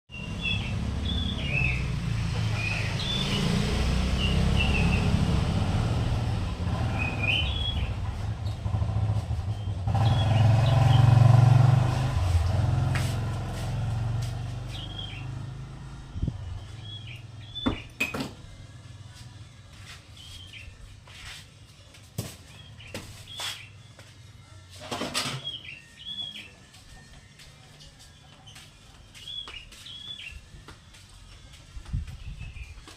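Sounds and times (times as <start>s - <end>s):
bird chirping song: 0.1s - 5.8s, 6.7s - 11.6s, 14.1s - 18.2s, 19.8s - 21.4s, 22.5s - 24.2s, 25.1s - 27.0s, 27.8s - 32.9s.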